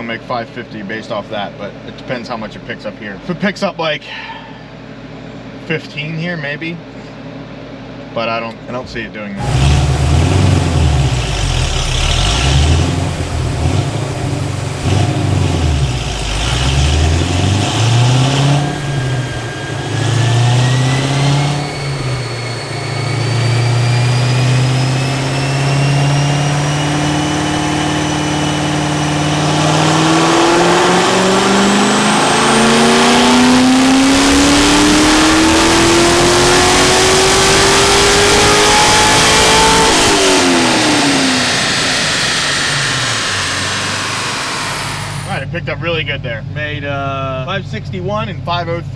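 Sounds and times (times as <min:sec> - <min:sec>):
car engine revving on dyno: 0:09.4 - 0:45.4.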